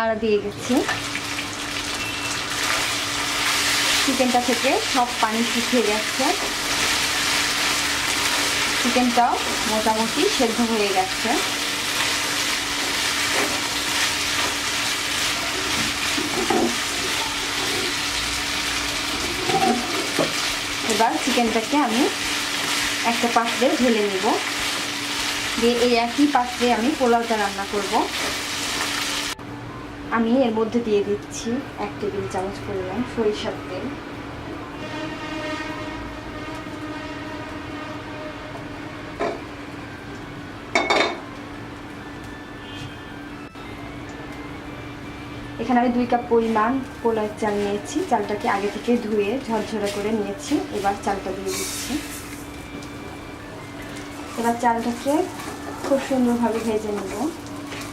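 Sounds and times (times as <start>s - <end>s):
chicken sizzling in a frying pan: 0.6s - 29.4s, 46.5s - 53.0s, 53.8s - 57.9s.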